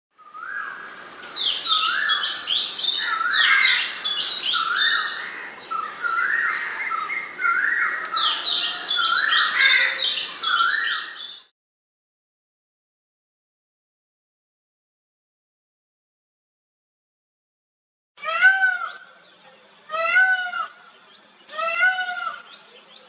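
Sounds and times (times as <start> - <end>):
bird song whistled notes: 0.2 - 11.5, 18.7 - 23.0.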